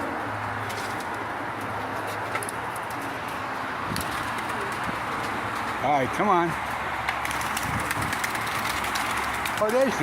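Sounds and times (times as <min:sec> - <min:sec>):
pigeons cooing: 0:03.9 - 0:05.8.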